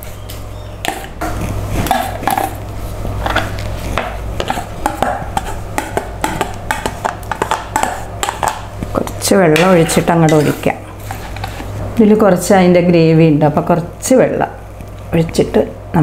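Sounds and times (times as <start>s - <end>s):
steady low hum: 0.0s - 16.0s
spoon knocking and scraping pan: 3.2s - 8.7s, 9.5s - 11.7s.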